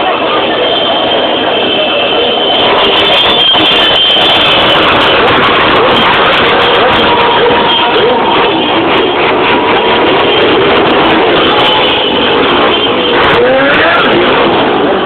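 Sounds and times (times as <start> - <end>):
dense noise: 0.0 - 15.0
car engine revving: 2.2 - 15.0.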